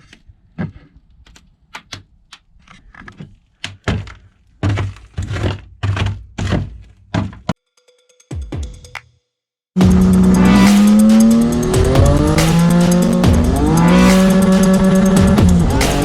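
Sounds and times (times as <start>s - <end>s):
sharp knocks and thuds: 3.7s - 7.6s.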